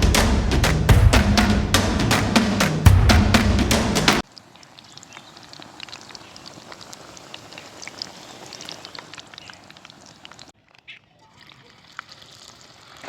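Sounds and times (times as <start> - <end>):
drum-beat music: 0.0 - 4.2
food deep-frying in hot oil: 4.2 - 10.5.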